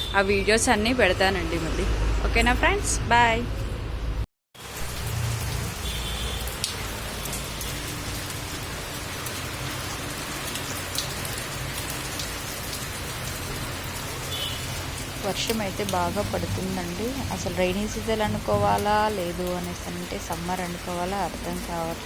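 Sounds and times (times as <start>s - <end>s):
heavy rain falling: 4.6s - 22.0s.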